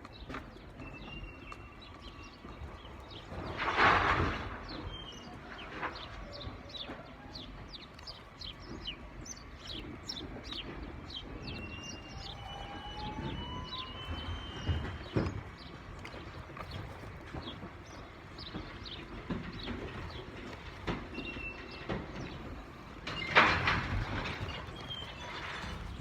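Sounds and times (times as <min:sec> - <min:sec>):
small birds chirping: 0:04.6 - 0:23.3.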